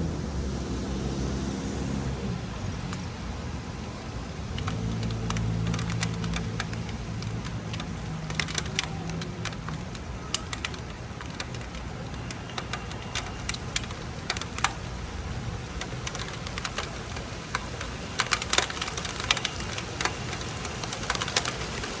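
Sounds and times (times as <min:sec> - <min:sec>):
steady hiss: 0:00.2 - 0:22.0
raindrops ticking on a surface: 0:02.5 - 0:22.0.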